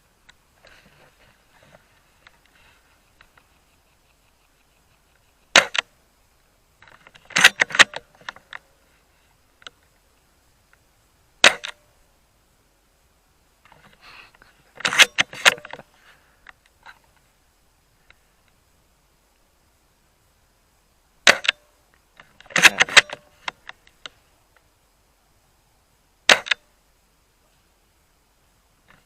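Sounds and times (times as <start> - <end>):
airsoft rifle sharp cracks: 5.5 - 5.9, 11.4 - 11.8, 21.2 - 21.6, 26.3 - 26.6
rifle bolt clicking and clatter: 6.8 - 8.6, 11.4 - 11.8, 14.8 - 15.8, 21.3 - 21.6, 22.2 - 23.8, 26.3 - 26.6.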